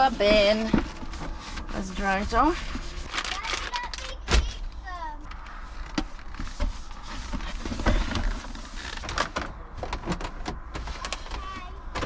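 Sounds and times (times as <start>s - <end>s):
towel rubbing against bin: 0.0s - 3.1s.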